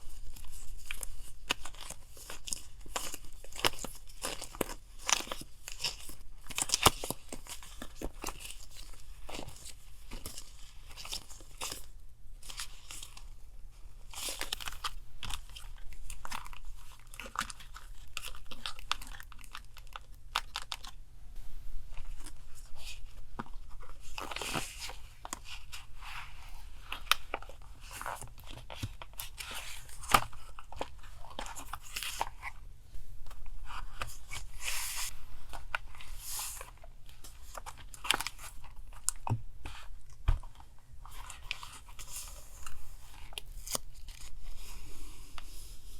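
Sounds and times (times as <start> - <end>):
paper crinkling and tearing: 33.6 - 44.7.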